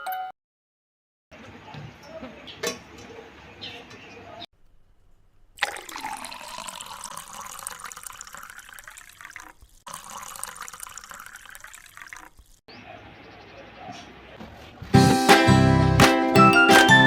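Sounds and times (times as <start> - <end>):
water running from tap: 5.6 - 12.6.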